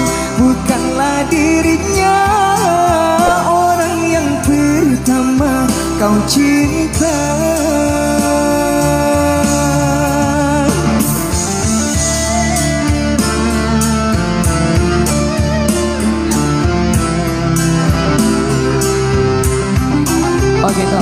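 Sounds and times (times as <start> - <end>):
live band music: 3.2 - 5.2.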